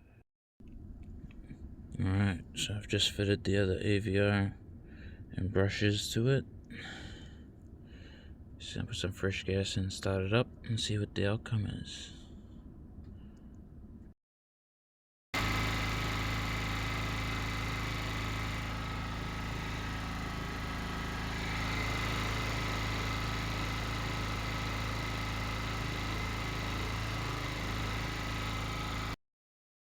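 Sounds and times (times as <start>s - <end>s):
generator engine running: 15.4s - 29.2s.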